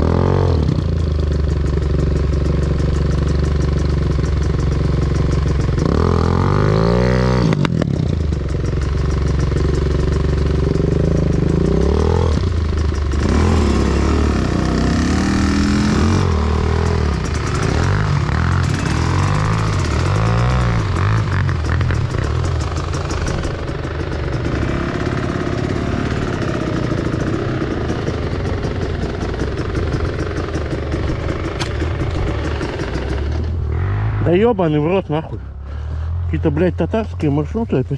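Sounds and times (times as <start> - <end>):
motorcycle engine revving: 0.0 - 37.7.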